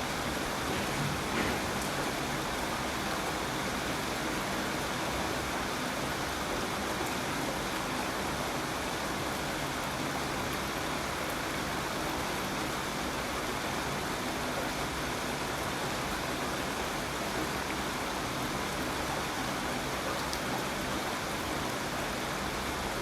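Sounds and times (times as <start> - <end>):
steady rain hissing: 0.0 - 23.0.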